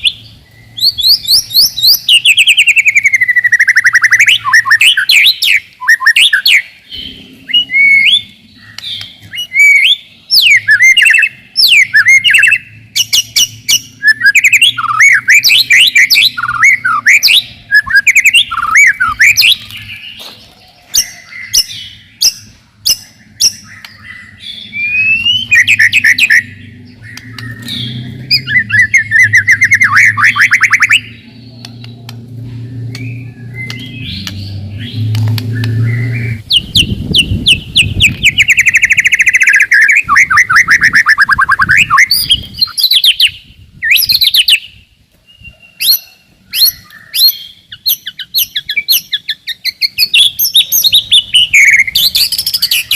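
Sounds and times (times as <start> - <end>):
bird singing trills and whistles: 0.0 - 52.9.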